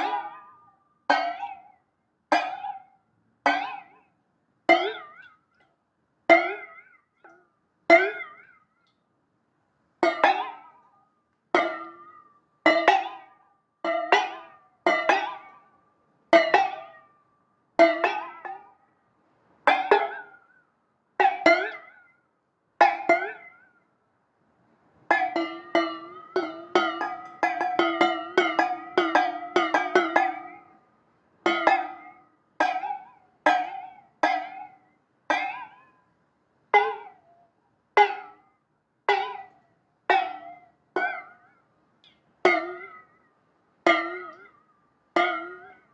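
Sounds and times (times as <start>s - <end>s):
plucked instrument twanging notes: 0.0s - 4.1s, 4.7s - 5.4s, 6.3s - 8.6s, 10.0s - 10.9s, 11.6s - 15.7s, 16.4s - 17.2s, 17.8s - 18.8s, 19.7s - 20.6s, 21.2s - 22.1s, 22.8s - 23.8s, 25.1s - 30.9s, 31.5s - 36.0s, 36.8s - 37.4s, 38.0s - 38.4s, 39.1s - 41.6s, 42.4s - 43.3s, 43.9s - 45.9s.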